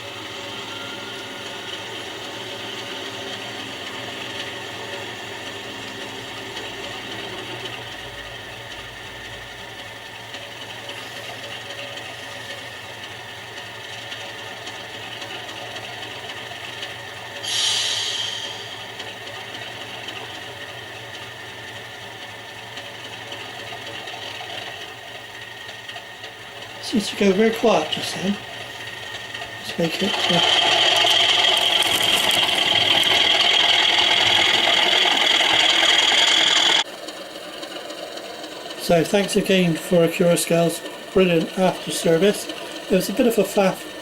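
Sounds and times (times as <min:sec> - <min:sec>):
diesel engine idling: 0:00.0 - 0:44.0
air hiss: 0:17.4 - 0:19.0.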